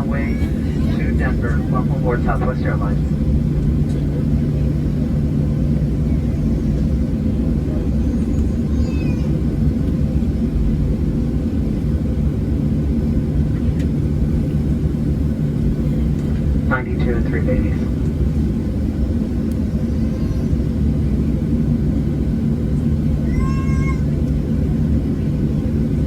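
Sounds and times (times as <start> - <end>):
low hums: 0.0 - 23.4
aircraft engines idling rumble: 0.0 - 26.0.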